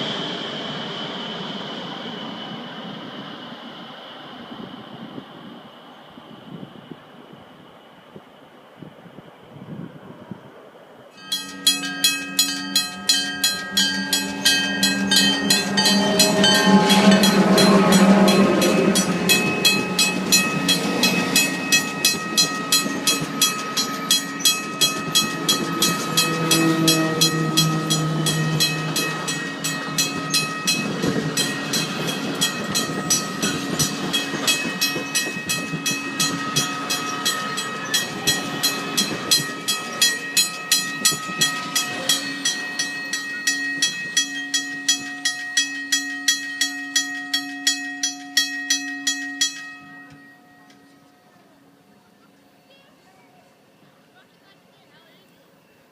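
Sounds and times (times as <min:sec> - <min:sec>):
train wheels clacking: 0:11.2 - 0:51.5
high ringing tones: 0:11.2 - 0:54.1.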